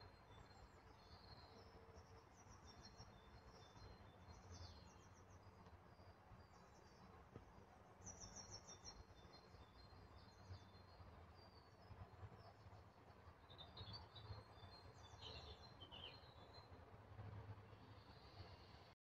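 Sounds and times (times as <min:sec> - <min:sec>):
faint bird chirps and trills: 0:00.0 - 0:19.0.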